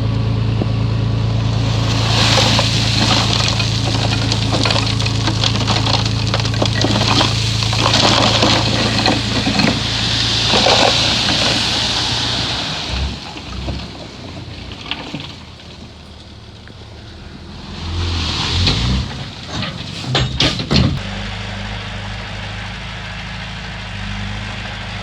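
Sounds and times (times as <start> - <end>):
bulldozer diesel engine under load: 0.0 - 25.0
soil crackling and crunching: 1.2 - 21.1.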